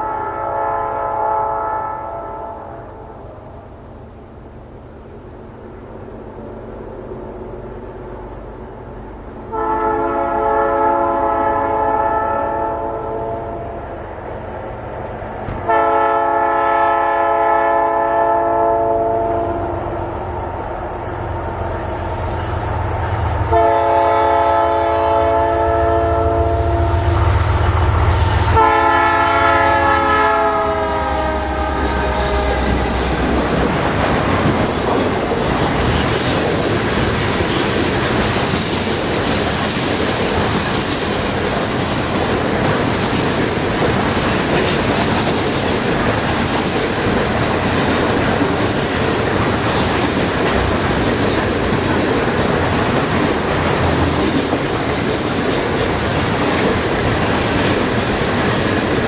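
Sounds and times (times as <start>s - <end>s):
locomotive air horn blasts: 0.0s - 2.9s, 9.5s - 13.9s, 15.6s - 20.2s, 23.4s - 33.0s
train passing roar: 0.0s - 59.0s
locomotive engines rumbling: 2.0s - 59.0s.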